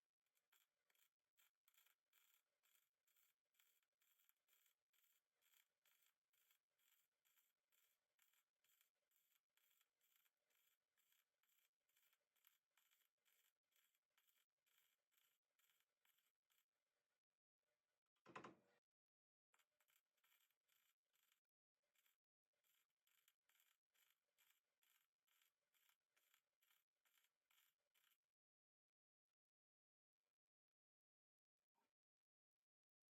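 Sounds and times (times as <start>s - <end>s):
faint scraping strokes by hand: 0.1s - 16.7s, 19.5s - 28.2s.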